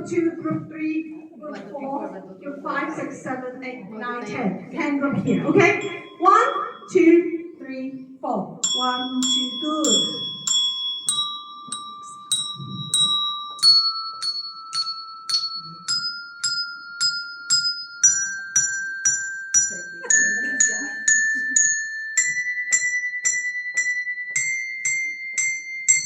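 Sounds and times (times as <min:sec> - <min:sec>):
handbells ringing ascending scale: 0:05.3 - 0:07.4, 0:08.6 - 0:26.0.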